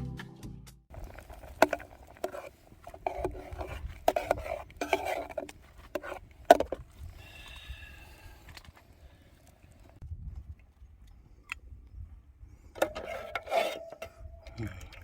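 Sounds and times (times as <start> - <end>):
background music: 0.0 - 0.8.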